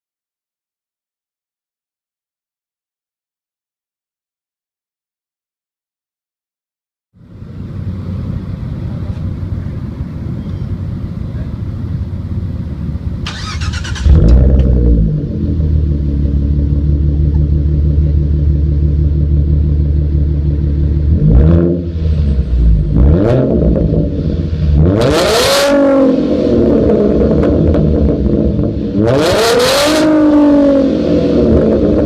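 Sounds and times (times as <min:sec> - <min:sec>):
car engine starting and revving: 0:13.2 - 0:32.0.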